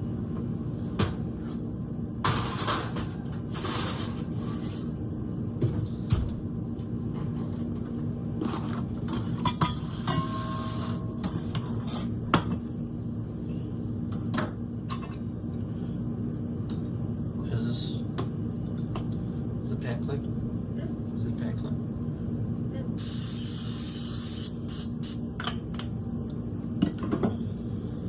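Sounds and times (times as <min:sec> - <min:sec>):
steady low hum: 0:00.0 - 0:28.0
brief tone: 0:10.2 - 0:11.2.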